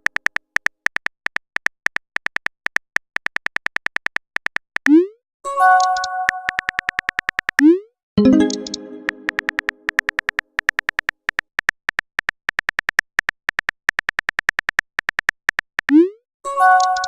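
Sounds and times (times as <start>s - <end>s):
message chime: 8.2s - 9.9s, 16.5s - 17.0s.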